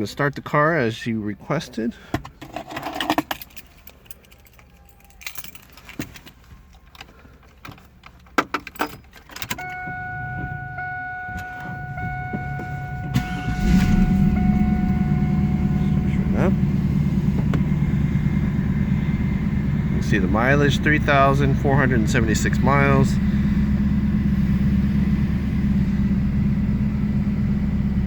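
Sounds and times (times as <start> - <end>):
keys jangling: 2.4 - 9.8
car engine starting and idling: 6.8 - 28.0
steady high tone: 9.6 - 24.1.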